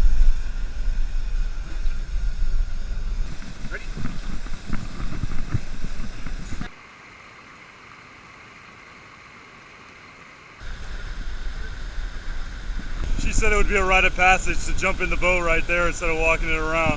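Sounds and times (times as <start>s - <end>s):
waterfall rushing: 10.6s - 16.9s.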